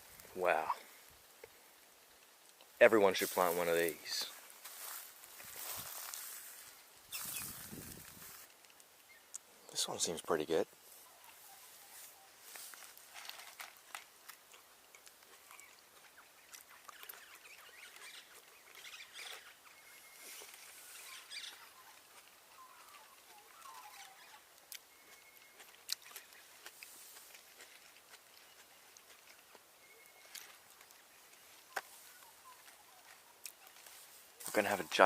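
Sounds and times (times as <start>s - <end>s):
faint rustling: 2.8s - 8.8s.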